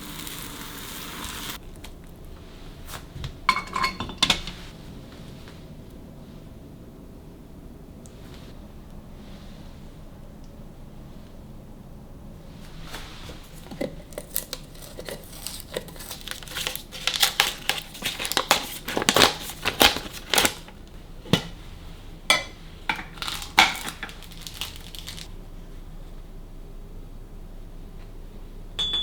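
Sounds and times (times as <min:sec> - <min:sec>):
crinkling and crackling: 0:12.5 - 0:21.8, 0:22.9 - 0:25.3.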